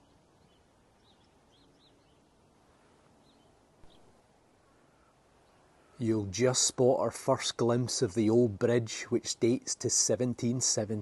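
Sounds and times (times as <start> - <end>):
faint high bird chirps: 0.0 - 2.4, 3.2 - 6.0
low steady hiss: 0.0 - 11.0.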